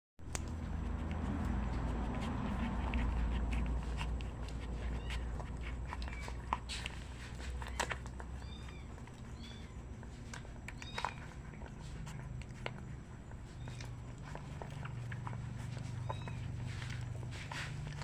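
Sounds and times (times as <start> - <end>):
puppies whimpering: 0.6 - 18.0.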